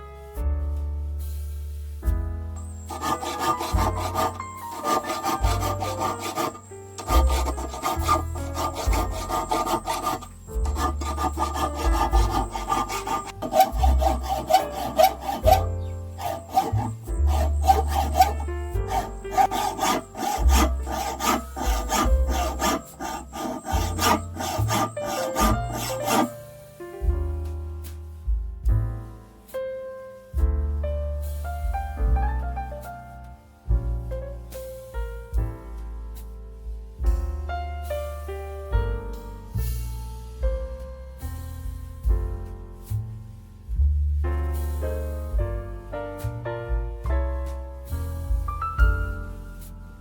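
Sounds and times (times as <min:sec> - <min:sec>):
background music with bass: 0:00.0 - 0:02.9, 0:25.4 - 0:29.5, 0:30.3 - 0:50.0
hand tool rasping: 0:02.6 - 0:26.4.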